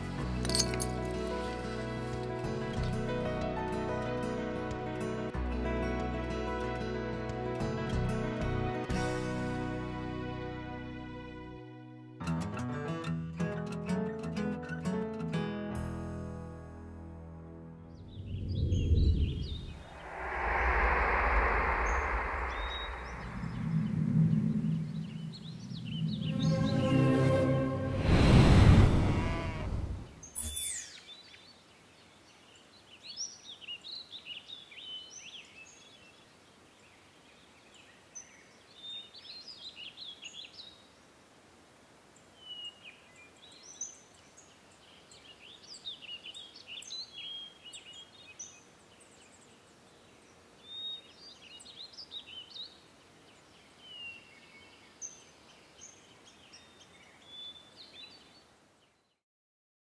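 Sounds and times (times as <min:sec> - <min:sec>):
music: 0:00.0 - 0:18.0, 0:26.2 - 0:28.4
songbirds singing: 0:22.5 - 0:27.1, 0:30.1 - 0:41.0, 0:42.2 - 0:59.2.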